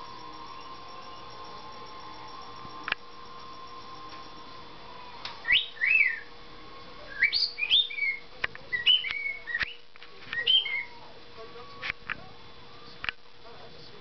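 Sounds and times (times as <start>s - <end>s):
sharp clicks: 0.0s - 4.4s
cockatiel whistling: 5.4s - 6.3s, 7.1s - 9.8s, 10.4s - 11.0s.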